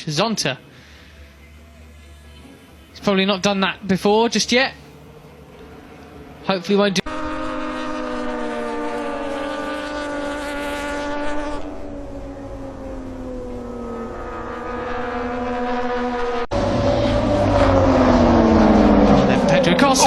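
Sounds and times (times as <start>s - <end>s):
closer motorcycle passing: 3.5s - 20.0s
racing motorcycle engine revving: 7.0s - 20.0s.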